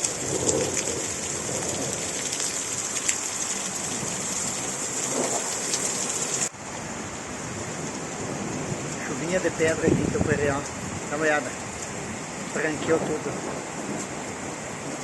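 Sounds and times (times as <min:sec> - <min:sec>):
hailstones pelting down: 0:00.0 - 0:06.5.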